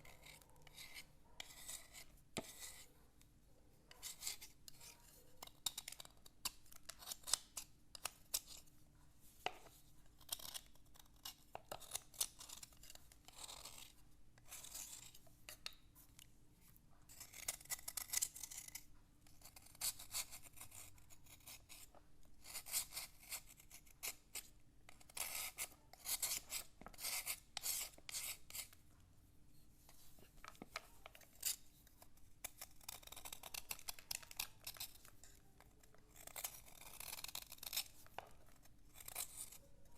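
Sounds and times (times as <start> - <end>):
slate being scraped: 0.0 - 2.9.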